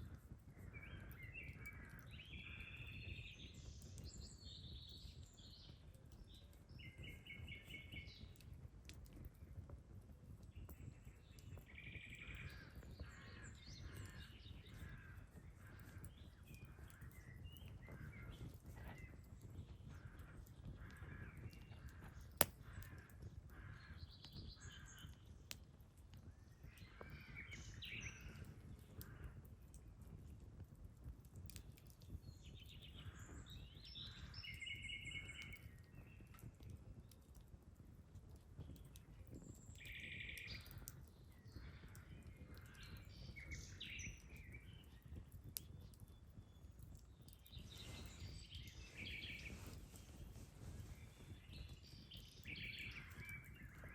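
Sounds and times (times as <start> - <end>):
campfire wood popping: 0.0 - 53.9
birds chirping: 45.9 - 53.9.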